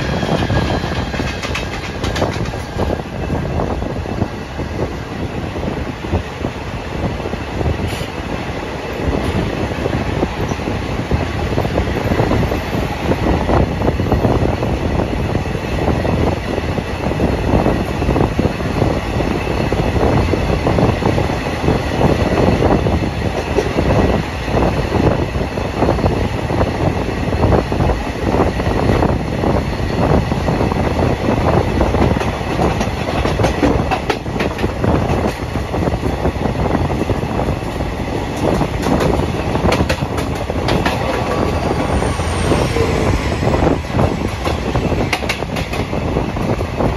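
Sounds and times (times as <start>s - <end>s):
track clatter and knocks: 0.0s - 3.0s, 31.9s - 35.5s, 37.0s - 46.9s
train wheels rumbling on rails: 0.0s - 46.9s.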